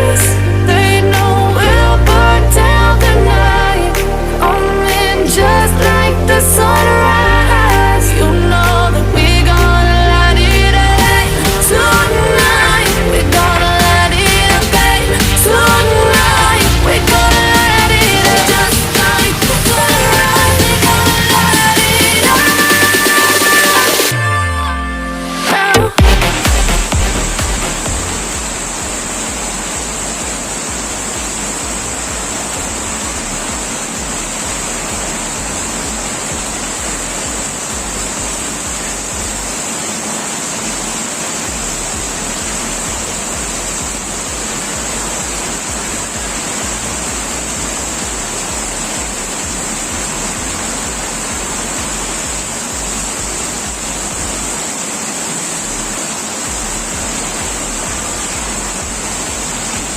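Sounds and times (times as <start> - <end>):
wind rumbling: 0.0 - 22.4
heavy rain hissing: 0.0 - 59.9.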